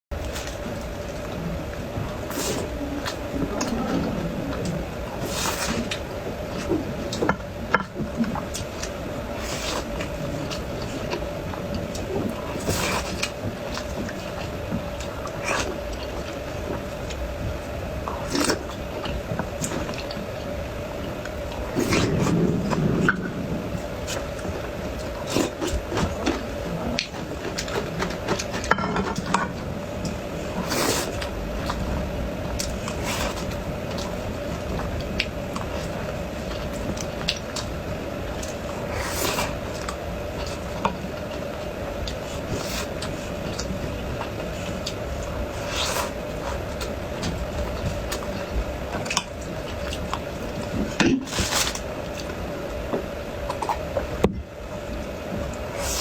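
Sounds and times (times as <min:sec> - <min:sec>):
steady low hum: 0:00.1 - 0:56.0
wet chewing: 0:21.1 - 0:52.4.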